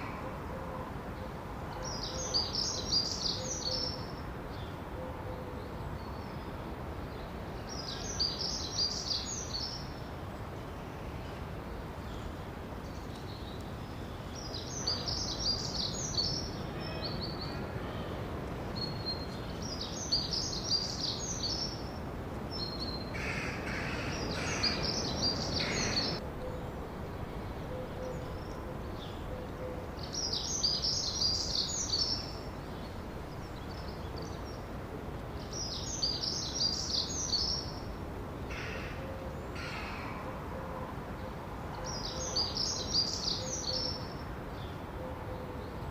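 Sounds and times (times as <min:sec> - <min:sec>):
background hiss: 0:00.0 - 0:45.9
birds warbling: 0:22.9 - 0:26.8.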